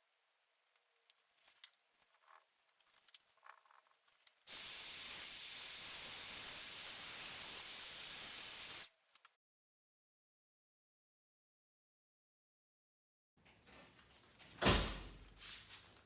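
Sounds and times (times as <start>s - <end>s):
air jet hissing: 4.5s - 8.9s.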